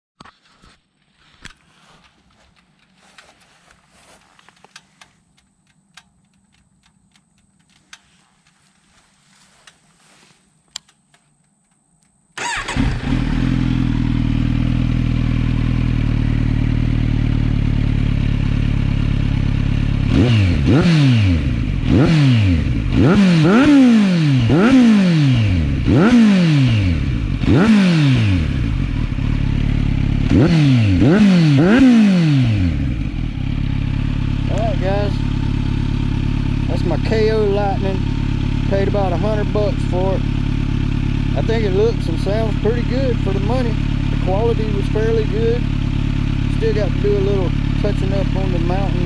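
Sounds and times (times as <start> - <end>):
faint clicks: 4.3 - 9.9, 10.6 - 12.4
motorcycle engine idling and revving: 12.4 - 49.0.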